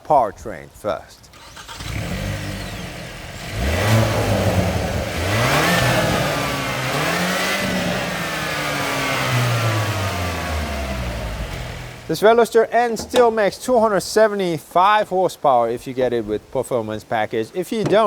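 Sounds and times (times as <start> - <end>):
car engine and exhaust revving: 1.4 - 12.1.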